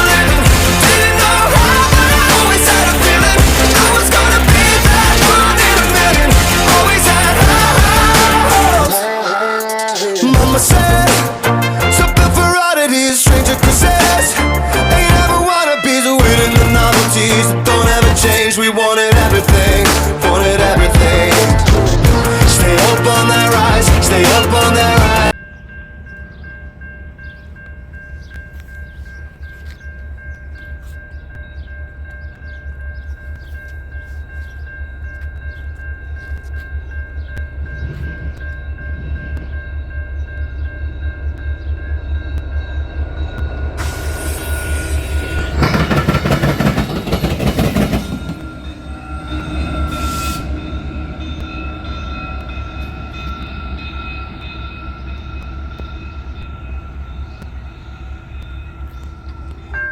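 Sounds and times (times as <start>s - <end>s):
diesel locomotive engine drumming: 0.0s - 9.2s, 9.8s - 15.6s, 16.2s - 59.9s
train horn blast: 11.4s - 12.6s, 48.4s - 53.4s.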